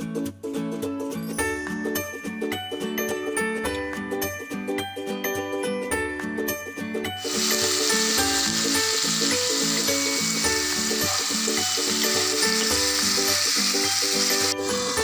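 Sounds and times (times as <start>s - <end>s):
background music low notes: 0.0s - 15.0s
chicken sizzling in hot oil: 7.2s - 15.0s.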